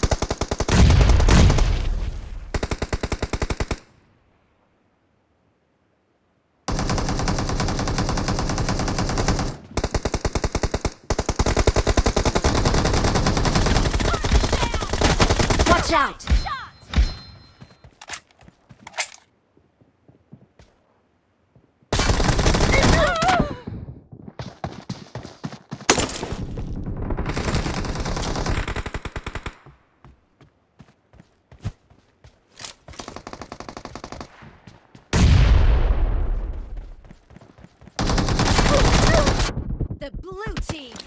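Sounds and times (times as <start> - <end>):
video game automatic gunfire: 6.7 - 15.8, 38.0 - 40.0.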